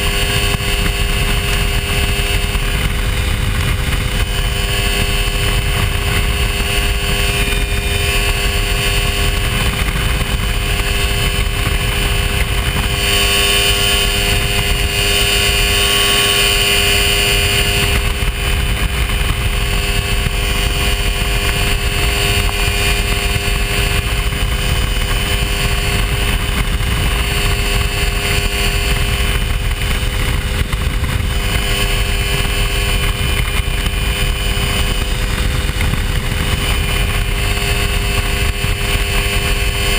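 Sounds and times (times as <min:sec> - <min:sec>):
aircraft engine droning: 0:00.0 - 0:39.9
wind noise: 0:00.0 - 0:39.9.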